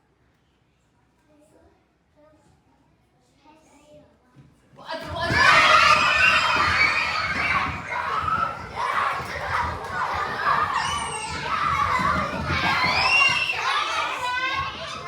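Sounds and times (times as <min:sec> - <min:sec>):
children shouting and squealing: 0:05.0 - 0:15.0.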